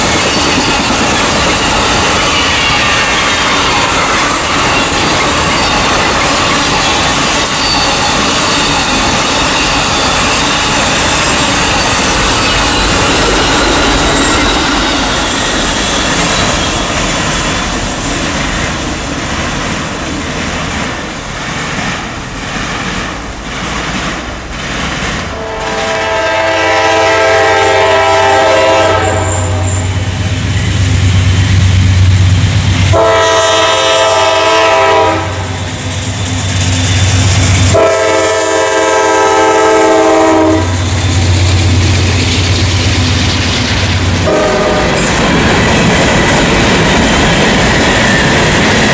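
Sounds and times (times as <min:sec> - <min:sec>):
diesel locomotive engines droning: 0:00.0 - 0:48.9
train horn blasts: 0:25.3 - 0:30.2, 0:32.9 - 0:35.6, 0:37.6 - 0:40.9, 0:44.2 - 0:45.1.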